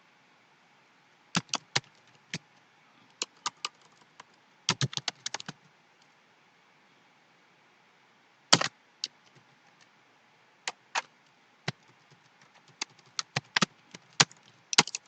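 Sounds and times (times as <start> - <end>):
keyboard typing: 1.4 - 2.0, 3.2 - 5.6, 11.7 - 15.0.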